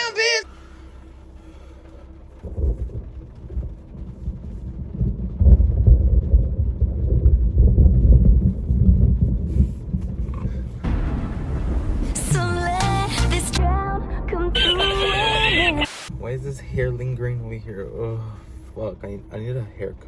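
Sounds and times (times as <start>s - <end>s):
thunder rumbling: 2.4s - 17.0s.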